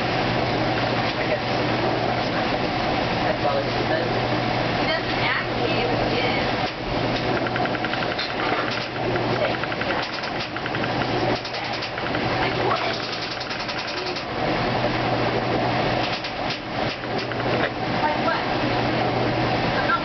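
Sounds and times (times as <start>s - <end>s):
washing machine motor hum: 0.0s - 20.0s
rapid ticking rattle: 7.1s - 14.4s, 16.0s - 17.6s.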